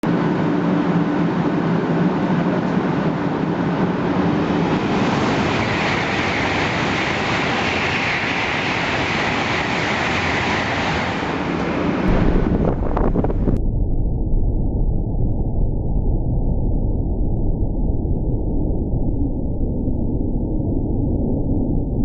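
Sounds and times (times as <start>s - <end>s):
high-speed train running: 0.0s - 13.6s.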